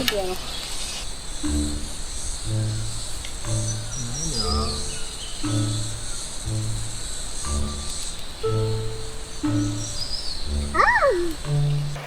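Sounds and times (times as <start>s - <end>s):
sustained synth notes: 1.3s - 12.0s
animal-like call: 10.6s - 11.5s.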